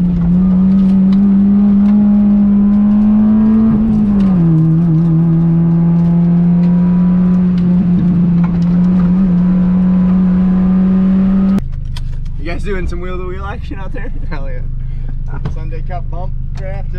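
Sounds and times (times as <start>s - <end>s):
car engine at high revs: 0.0s - 16.9s.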